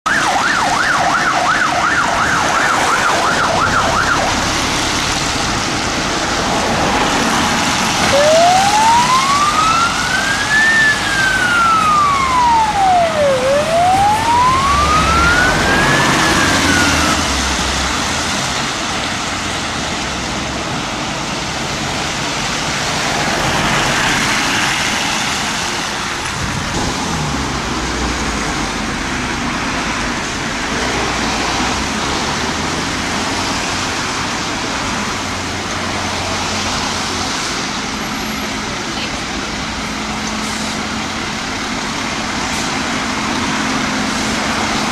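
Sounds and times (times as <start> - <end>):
road and engine noise: 0.0 - 44.9
siren yelping: 0.1 - 5.1, 7.9 - 17.7
siren wailing: 0.1 - 5.5, 7.1 - 17.9.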